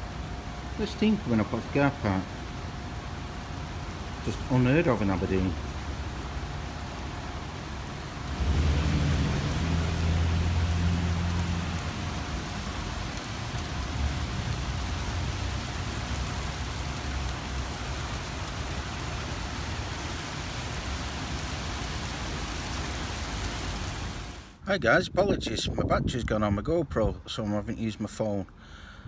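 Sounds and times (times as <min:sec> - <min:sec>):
heavy rain falling: 0:00.0 - 0:24.6
low engine hum: 0:05.6 - 0:18.2.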